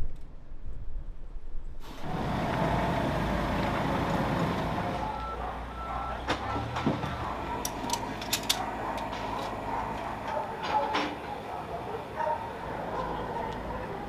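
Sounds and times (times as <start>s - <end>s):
engine rumble: 1.7s - 14.0s
reversing alarm beeping: 4.8s - 10.3s.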